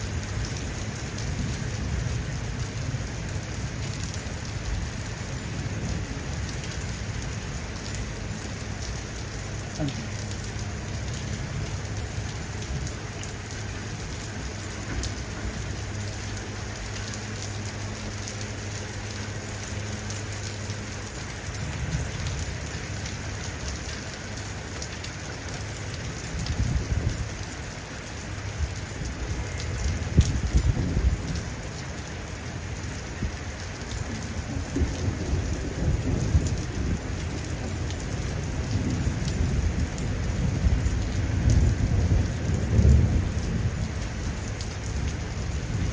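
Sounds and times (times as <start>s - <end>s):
heavy rain: 0.0s - 45.9s
rolling thunder: 34.1s - 45.9s.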